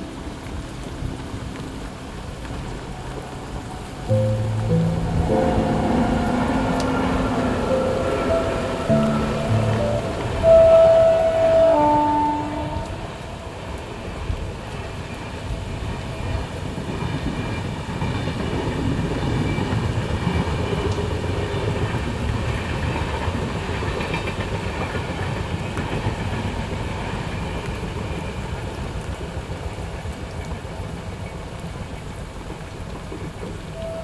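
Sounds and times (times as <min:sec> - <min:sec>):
train wheels rumbling on track: 0:12.6 - 0:34.0
clickety-clack of train wheels: 0:14.8 - 0:33.8.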